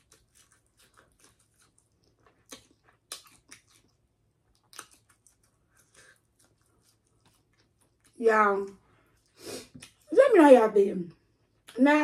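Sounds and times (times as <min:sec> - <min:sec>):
chewing shrimp: 0:00.0 - 0:10.1.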